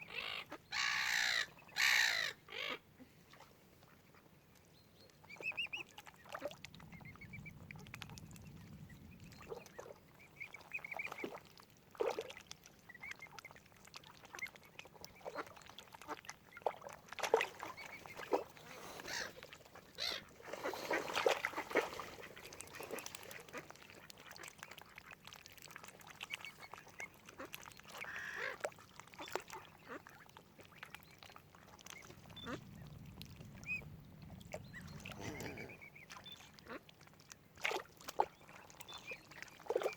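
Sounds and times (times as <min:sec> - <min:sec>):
ducks quacking: 0:18.1 - 0:23.6, 0:34.9 - 0:35.9.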